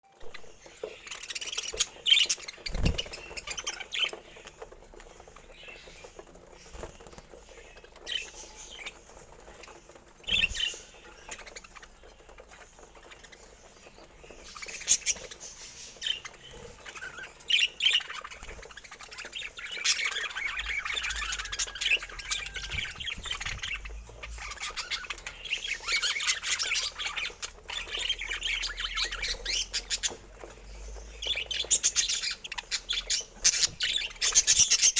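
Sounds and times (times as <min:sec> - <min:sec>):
budgerigars chirping and squawking: 0:00.2 - 0:34.9.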